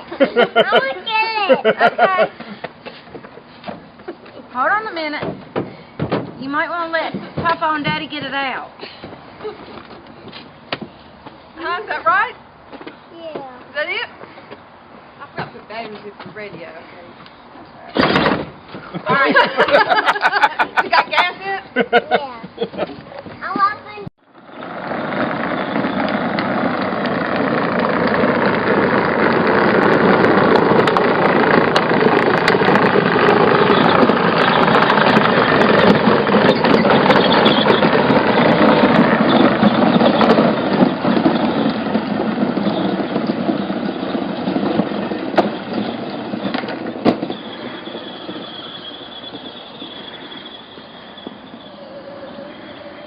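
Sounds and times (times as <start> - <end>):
thin high whine: 45.4 - 53.0
small toy engine running: 45.7 - 53.0.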